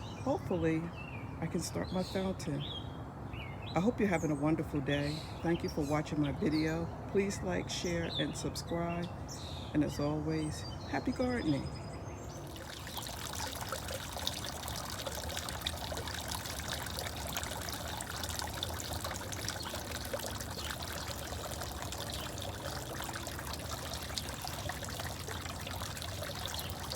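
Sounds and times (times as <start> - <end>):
fountain water trickling and splashing: 10.5 - 26.9.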